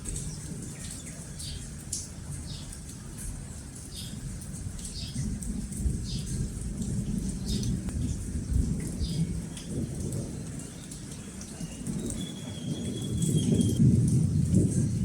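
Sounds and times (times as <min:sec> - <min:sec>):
rain hiss: 0:00.0 - 0:15.0
low rolling thunder: 0:05.2 - 0:11.1, 0:11.8 - 0:15.0
bird chirping: 0:11.6 - 0:13.8.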